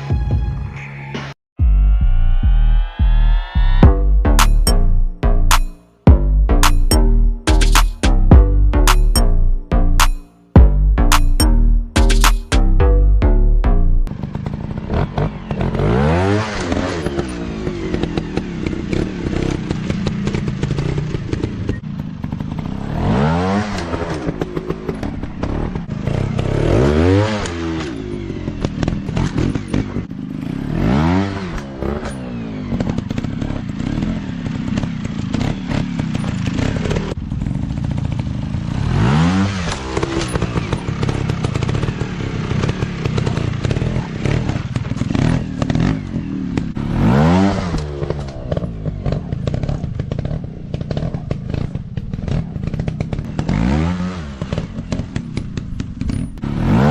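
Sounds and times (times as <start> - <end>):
dirt bike engines revving: 14.1 - 56.9.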